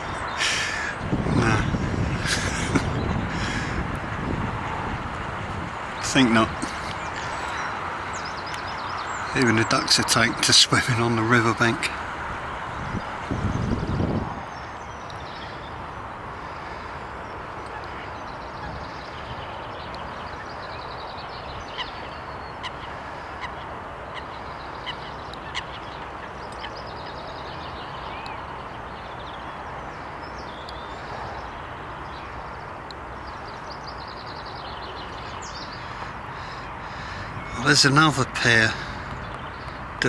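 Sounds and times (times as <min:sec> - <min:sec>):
high bird twittering: 0:00.0 - 0:03.9
steady rushing noise: 0:00.0 - 0:40.0
waterbirds calling: 0:00.0 - 0:40.0.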